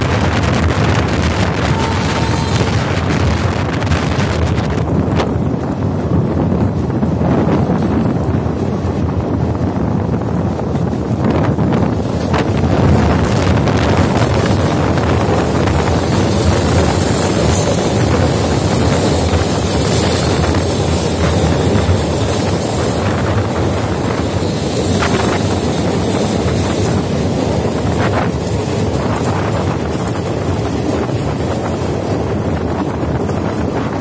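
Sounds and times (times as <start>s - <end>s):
train wheels rushing on rails: 0.0s - 34.0s
wind buffeting microphone: 0.0s - 34.0s.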